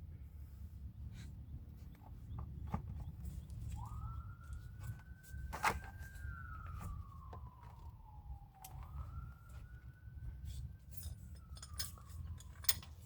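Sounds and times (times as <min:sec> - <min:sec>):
distant siren wailing: 0:03.3 - 0:13.0.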